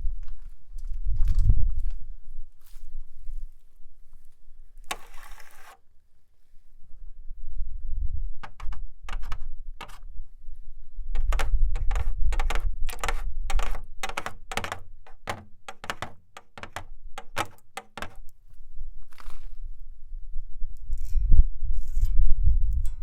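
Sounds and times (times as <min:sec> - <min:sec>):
short scratch: 0:04.9 - 0:05.8
nail tapping on shelf: 0:08.4 - 0:10.0, 0:11.2 - 0:18.2.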